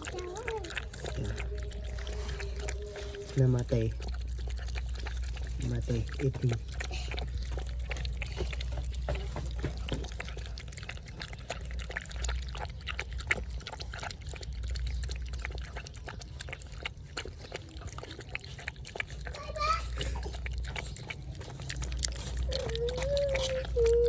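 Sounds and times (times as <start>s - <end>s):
low hum: 0.0s - 11.0s
puppies eating wet smacking: 0.0s - 24.0s.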